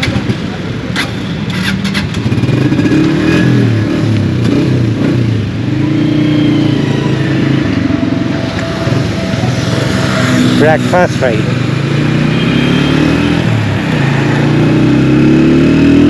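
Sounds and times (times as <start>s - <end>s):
motorcycle engine revving: 1.5s - 16.0s.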